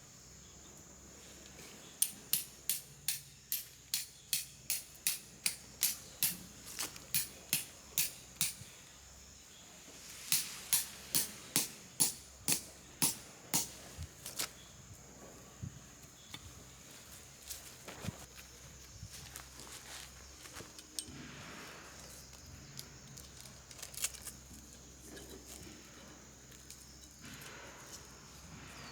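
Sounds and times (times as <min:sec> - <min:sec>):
hammer striking metal stake: 0:02.0 - 0:06.5, 0:07.1 - 0:08.6, 0:10.3 - 0:13.8.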